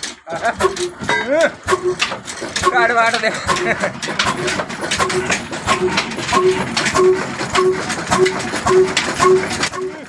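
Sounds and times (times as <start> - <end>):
diesel engine chugging: 0.0 - 10.0.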